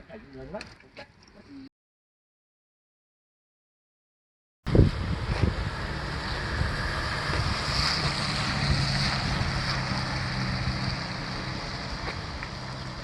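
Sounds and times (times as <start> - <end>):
vehicle engine hum: 4.7 - 13.0
wind rushing over microphone: 4.7 - 13.0.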